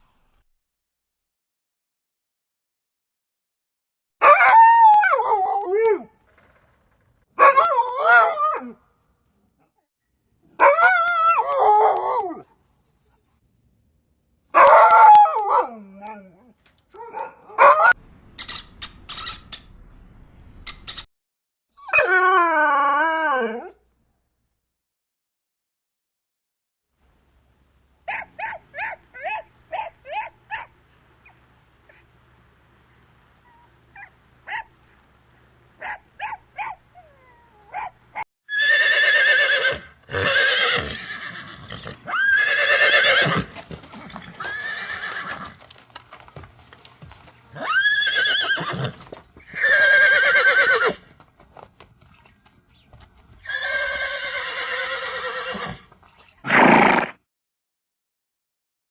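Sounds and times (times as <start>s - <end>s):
short pitched calls: 18.0s - 21.1s
horse whinnying: 38.5s - 45.6s, 47.5s - 51.0s, 53.4s - 57.2s.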